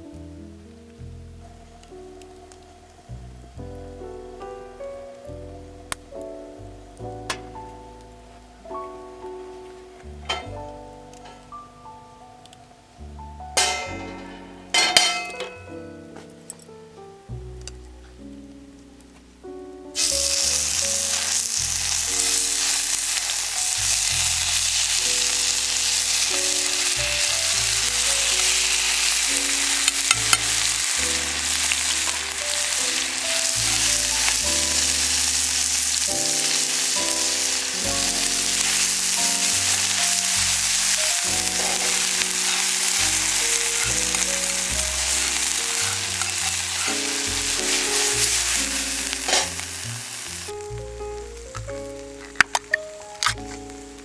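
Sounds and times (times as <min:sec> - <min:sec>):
quiet background music: 0:00.0 - 0:54.0
food sizzling in a pan: 0:13.6 - 0:15.3, 0:20.0 - 0:54.0.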